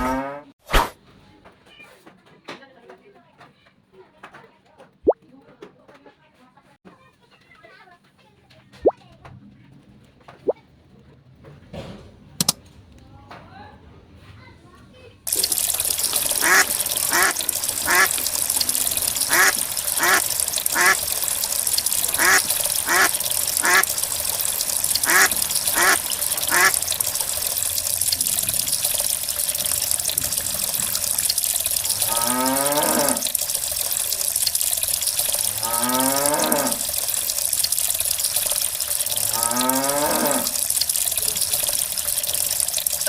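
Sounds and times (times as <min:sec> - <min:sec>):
running water: 0:15.3 - 0:43.0
duck quacking: 0:16.1 - 0:21.1, 0:21.9 - 0:24.0, 0:25.0 - 0:26.9
cow mooing: 0:31.8 - 0:33.4, 0:35.4 - 0:36.9, 0:39.2 - 0:40.6.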